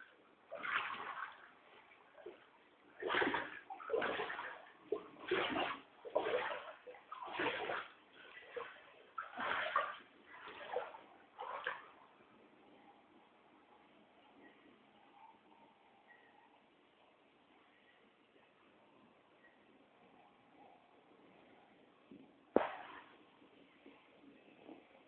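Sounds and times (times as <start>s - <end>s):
floodwater sloshing and splashing: 0.0s - 12.2s, 22.5s - 24.9s.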